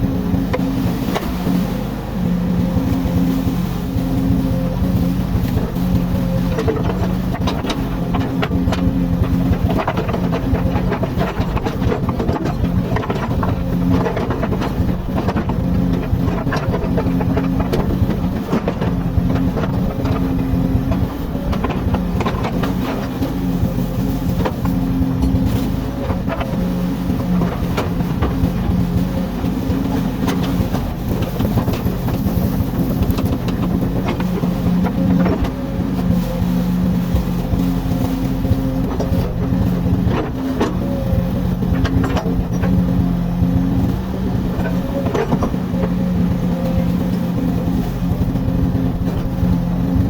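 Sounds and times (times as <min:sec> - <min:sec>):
excavator diesel engine running: 0:00.0 - 0:50.0
machine clanks and knocks: 0:06.6 - 0:26.6, 0:41.7 - 0:42.9.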